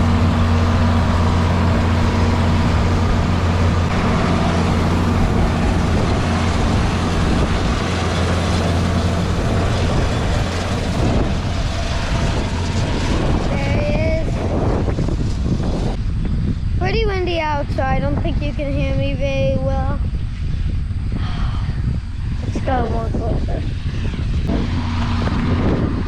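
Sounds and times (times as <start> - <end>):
tractor engine droning: 0.0 - 16.2, 20.2 - 26.0
wind noise on microphone: 0.0 - 26.0.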